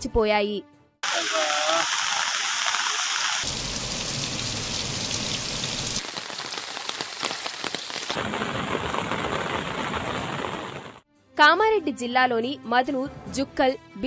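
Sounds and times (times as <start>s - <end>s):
heavy rain on a street: 1.0s - 11.0s.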